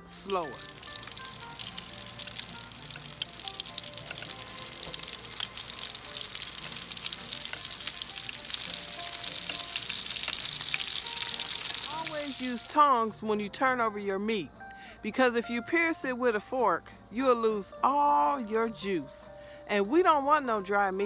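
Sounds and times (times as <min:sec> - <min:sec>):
ribs deep-frying in hot oil: 0:00.0 - 0:12.8.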